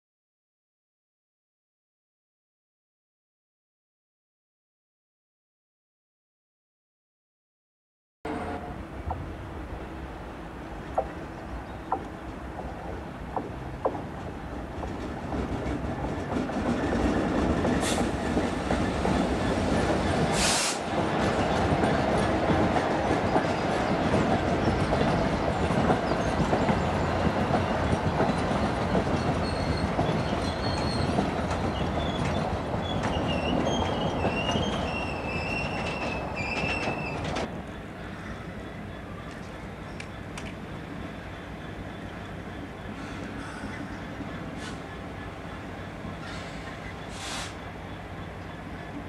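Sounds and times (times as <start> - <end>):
diesel locomotive engine passing: 8.3 - 49.0
brief hisses: 20.3 - 20.8, 46.3 - 47.6
wheels squealing on curve: 29.2 - 37.5.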